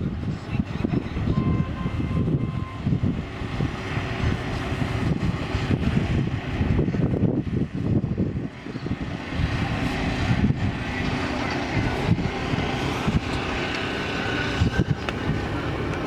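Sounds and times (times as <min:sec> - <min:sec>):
heavy vehicle engines rumbling: 0:00.0 - 0:16.0.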